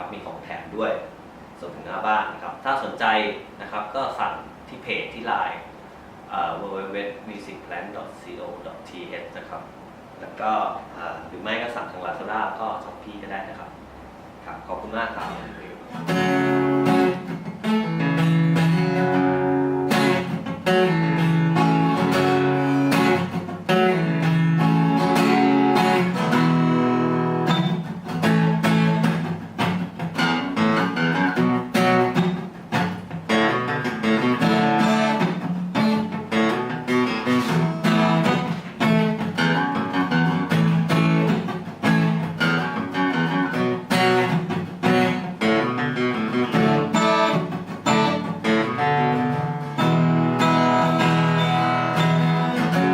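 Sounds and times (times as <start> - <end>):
acoustic guitar strumming chords: 15.1 - 52.9.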